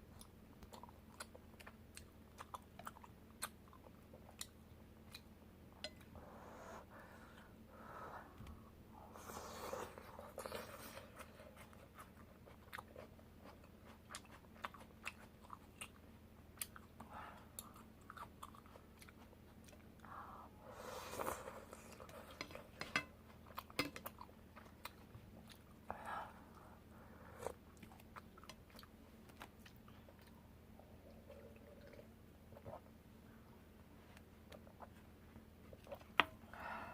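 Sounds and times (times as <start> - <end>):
person chewing wetly: 0.2 - 6.1, 10.3 - 16.0, 16.6 - 20.0, 27.5 - 33.0.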